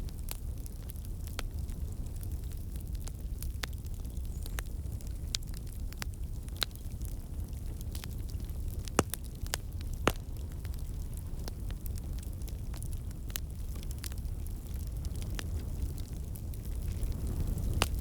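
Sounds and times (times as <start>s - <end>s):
wood fire crackling: 0.0s - 18.0s
sharp pops and snaps: 8.8s - 10.3s.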